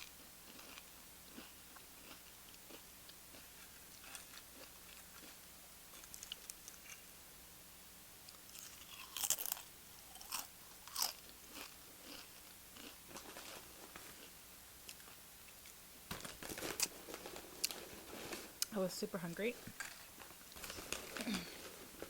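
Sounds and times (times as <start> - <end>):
tortilla chips crunching: 0.0 - 7.1, 8.3 - 15.1.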